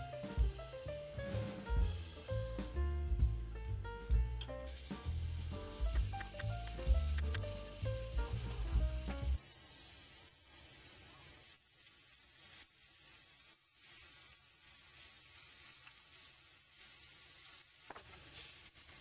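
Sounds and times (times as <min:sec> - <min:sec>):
food sizzling in frying pan: 0:04.4 - 0:19.0.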